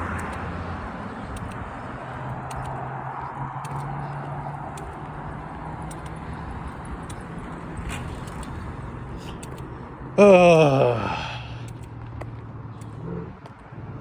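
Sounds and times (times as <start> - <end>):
vehicle engine humming: 0.0 - 14.0
light clicks: 0.1 - 0.5, 1.3 - 7.3, 9.2 - 9.8, 11.6 - 13.6.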